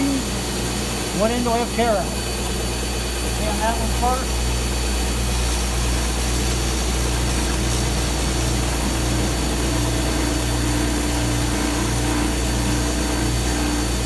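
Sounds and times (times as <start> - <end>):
power sander sanding wood: 0.0 - 2.2, 5.0 - 14.0.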